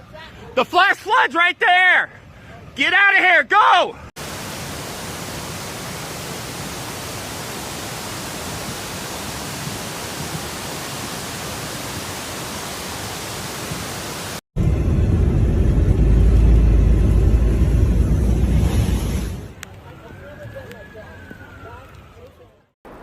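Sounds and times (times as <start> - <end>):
rainstorm hiss: 4.2 - 14.4.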